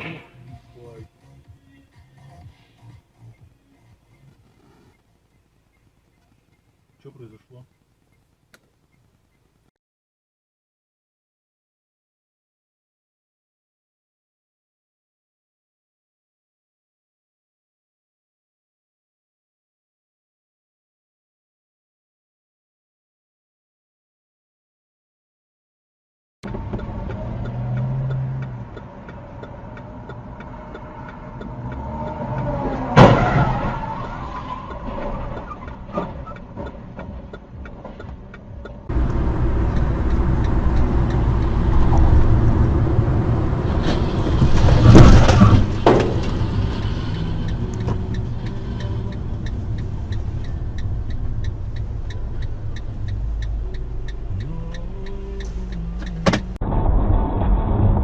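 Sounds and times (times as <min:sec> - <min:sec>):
car driving noise: 0:00.0 - 0:09.7, 0:26.4 - 0:58.0.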